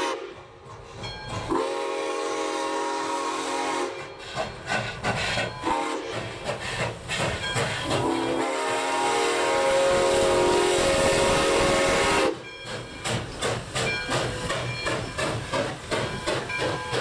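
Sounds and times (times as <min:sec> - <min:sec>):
steam locomotive whistle: 0:00.0 - 0:00.5, 0:01.5 - 0:04.2, 0:05.6 - 0:06.3, 0:07.8 - 0:12.4
locomotive exhaust chuffing: 0:04.2 - 0:17.0.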